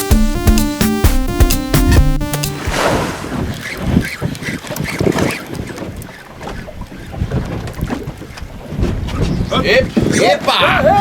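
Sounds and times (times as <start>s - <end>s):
water rushing along boat hull: 1.6s - 11.0s
wind buffeting microphone: 2.7s - 11.0s.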